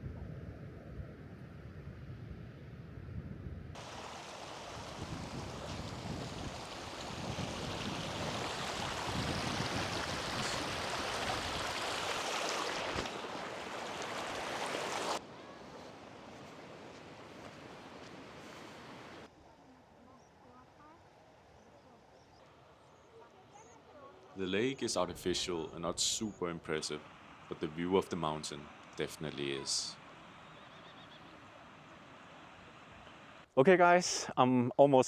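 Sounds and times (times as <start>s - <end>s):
low wind rumble: 0.0s - 19.3s
rushing river water: 3.8s - 19.3s, 23.8s - 33.5s.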